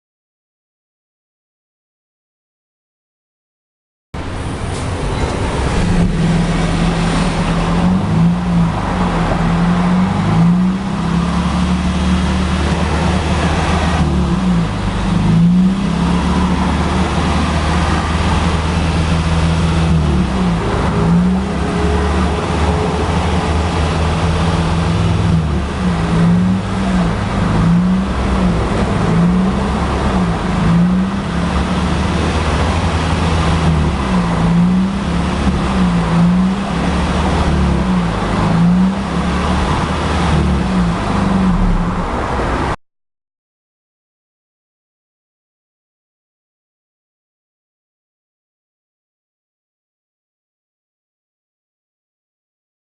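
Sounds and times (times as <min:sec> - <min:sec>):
car engine revving: 0:04.2 - 0:42.8.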